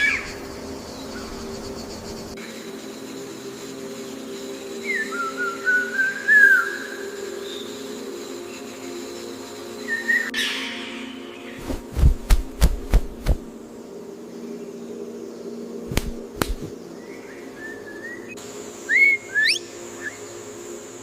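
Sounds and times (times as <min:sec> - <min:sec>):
sharp snaps: 0:11.6 - 0:13.5, 0:15.9 - 0:16.8
bird whistling: 0:17.6 - 0:20.2.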